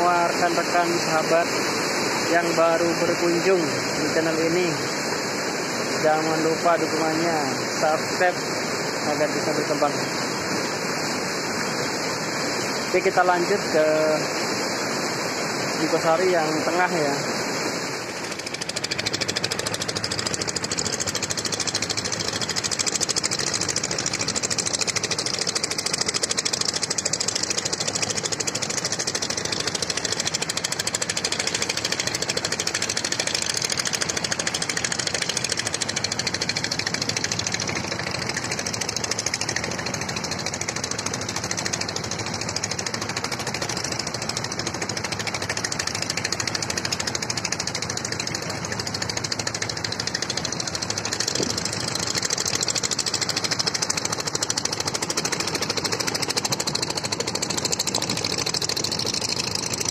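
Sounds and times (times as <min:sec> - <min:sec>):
engine running with pulsing beat: 0:00.0 - 0:59.9.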